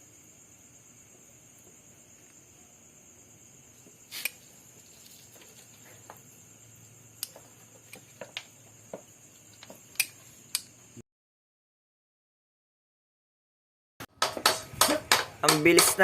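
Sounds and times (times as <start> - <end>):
faint high-pitched hiss: 0.0 - 11.0
metallic clicks of hand tools: 9.6 - 10.8.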